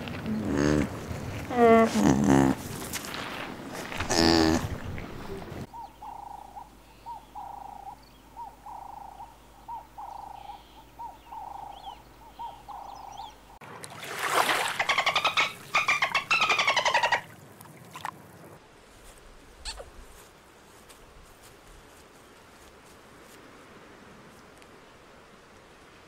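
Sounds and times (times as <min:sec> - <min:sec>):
dolphin clicking and whistling: 0:14.8 - 0:17.2.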